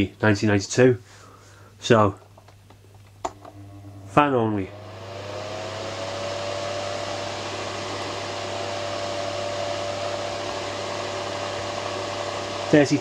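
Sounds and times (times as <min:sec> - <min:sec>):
fan motor whine: 0:03.2 - 0:13.0
fan heater blowing air: 0:03.3 - 0:13.0.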